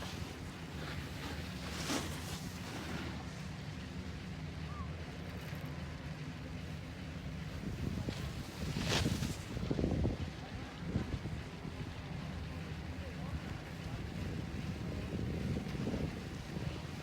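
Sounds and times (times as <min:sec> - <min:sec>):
low mechanical rumble: 0:00.0 - 0:15.6
wind noise on microphone: 0:07.5 - 0:11.8, 0:13.9 - 0:17.0.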